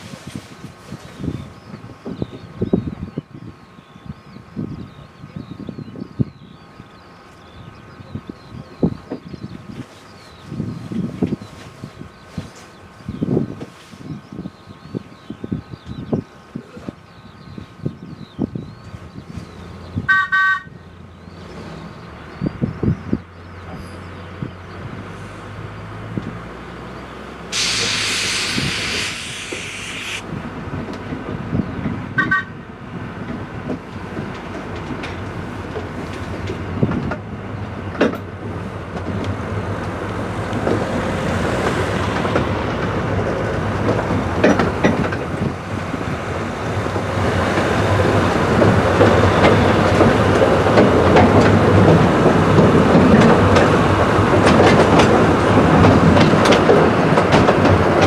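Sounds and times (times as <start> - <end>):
loud hiss: 27.5 - 30.3
train wheels clattering over rail joints: 33.2 - 58.0.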